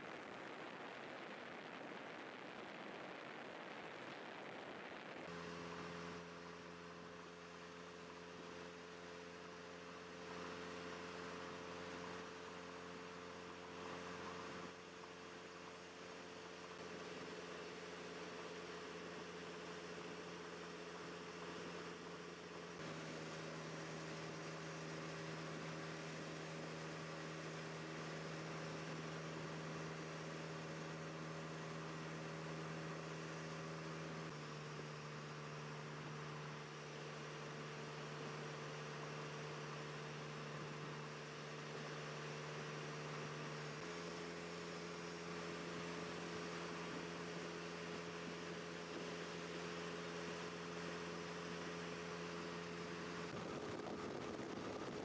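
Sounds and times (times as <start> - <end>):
steady hiss: 0.0 - 5.3
vehicle engine drone: 0.0 - 55.0.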